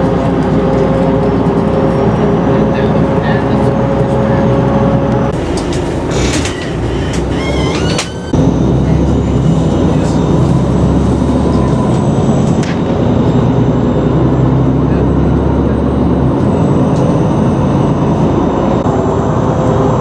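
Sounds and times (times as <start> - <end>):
vehicle engine rumbling: 3.9 - 19.4
high squeals: 5.4 - 10.4.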